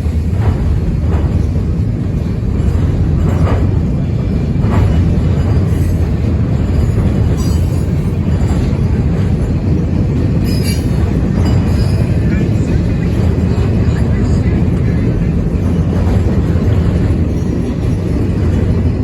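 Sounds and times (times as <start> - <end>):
train rumbling past: 0.0 - 19.0.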